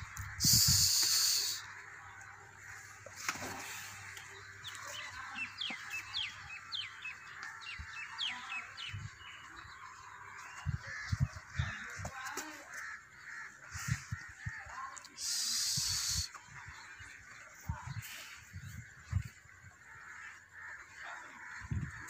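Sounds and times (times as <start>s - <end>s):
birds chirping: 0.0s - 22.0s
loud hiss: 0.4s - 1.6s, 15.2s - 16.3s.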